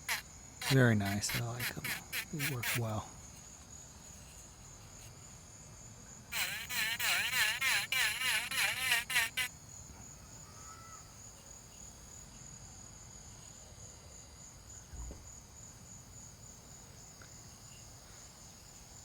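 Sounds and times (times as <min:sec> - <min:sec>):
high-pitched insect trill: 0:00.0 - 0:19.0
soft low thump: 0:14.9 - 0:15.4.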